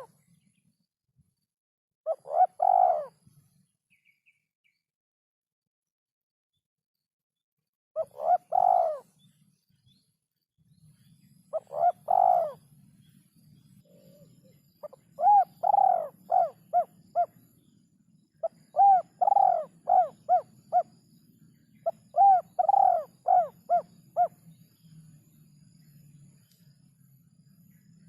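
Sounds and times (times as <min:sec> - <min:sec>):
dove cooing: 0:02.1 - 0:03.2, 0:08.0 - 0:09.1, 0:11.6 - 0:12.7, 0:13.8 - 0:17.4, 0:18.4 - 0:20.9, 0:21.8 - 0:24.4.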